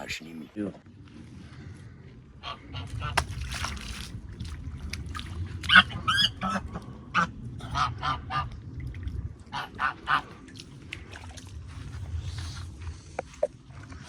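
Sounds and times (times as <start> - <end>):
waterfowl calling: 5.6 - 8.5.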